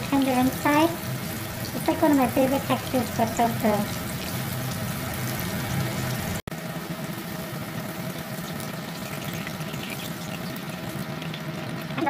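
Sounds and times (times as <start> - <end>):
tofu sizzling in hot oil: 0.0 - 12.0.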